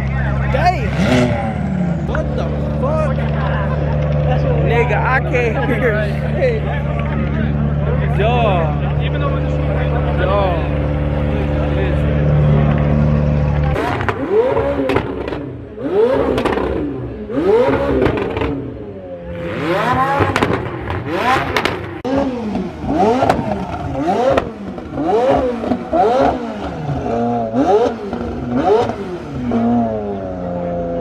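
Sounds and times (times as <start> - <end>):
car engine revving in blips: 0.0 - 5.5, 6.7 - 31.0
exhaust crackles and pops: 1.1 - 5.5, 6.7 - 8.0, 12.2 - 15.6, 19.9 - 22.6.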